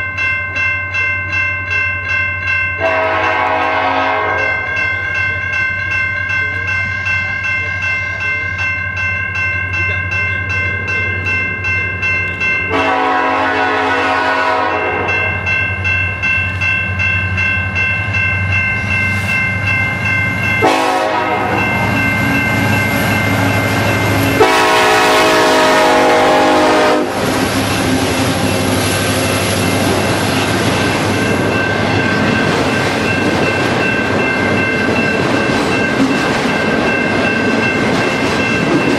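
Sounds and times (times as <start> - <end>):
freight train rumble: 0.0 - 38.9
train air horn blasts: 2.8 - 4.7, 12.7 - 15.2, 20.6 - 21.7, 24.2 - 27.4.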